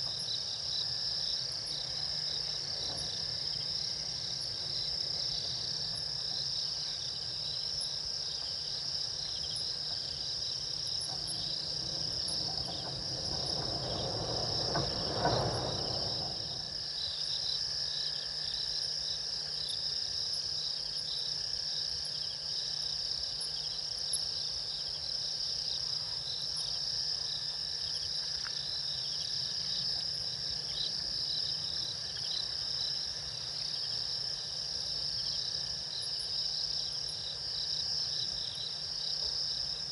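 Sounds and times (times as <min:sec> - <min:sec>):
crickets chirring: 0:00.0 - 0:39.9
low rushing noise: 0:11.2 - 0:16.8.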